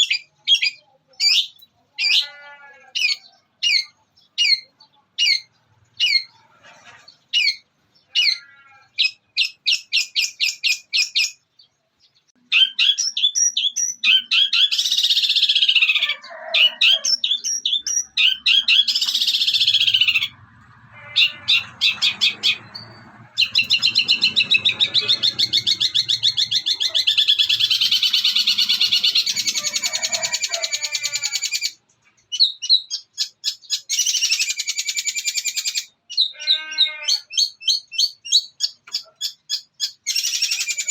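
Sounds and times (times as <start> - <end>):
bird harsh chattering: 0.0 - 11.4, 12.4 - 40.9
shrike singing mimicking song: 12.4 - 40.9
bird fast rattling trill: 21.2 - 31.7.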